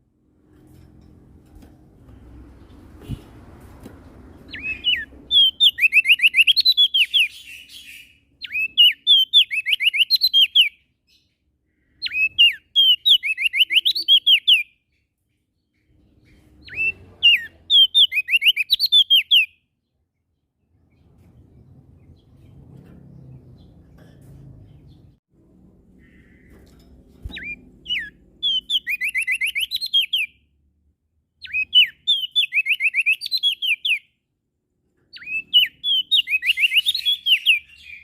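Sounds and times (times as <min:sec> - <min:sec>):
songbird singing: 0:04.3 - 0:25.2, 0:25.9 - 0:30.5, 0:31.3 - 0:34.2, 0:35.0 - 0:38.0.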